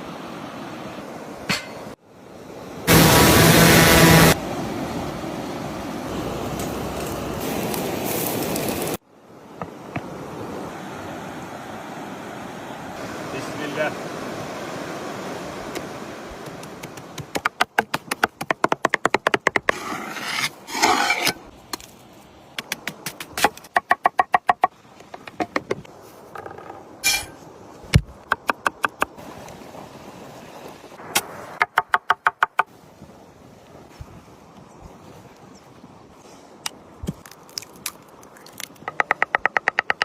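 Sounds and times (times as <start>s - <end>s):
knife scraping board: 19.6s - 21.4s.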